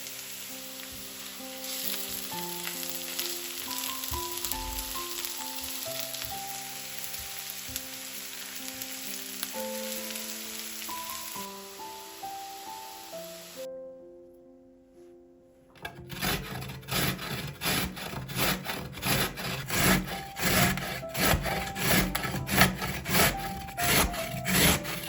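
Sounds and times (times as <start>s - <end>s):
food sizzling in a frying pan: 0.0s - 13.7s
soft piano music: 0.0s - 25.0s.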